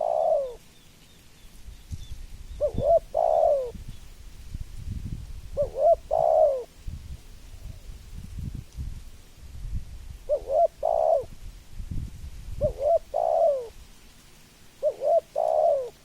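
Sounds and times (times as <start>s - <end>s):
dove cooing: 0.0s - 0.6s, 2.6s - 3.8s, 5.5s - 6.8s, 10.3s - 11.4s, 12.6s - 13.8s, 14.8s - 16.0s.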